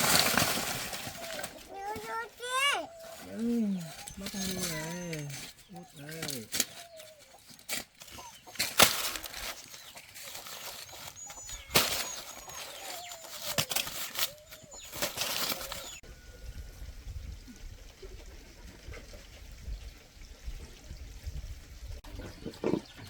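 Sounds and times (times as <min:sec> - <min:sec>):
chickens flapping wings: 0:00.0 - 0:03.4, 0:06.2 - 0:16.0
chickens squawking: 0:00.0 - 0:16.0.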